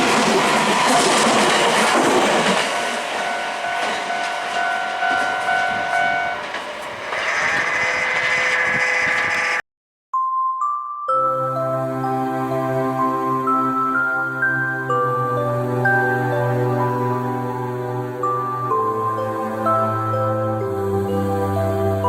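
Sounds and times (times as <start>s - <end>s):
electric train passing: 0.0s - 9.6s
steady high tones: 0.0s - 9.6s.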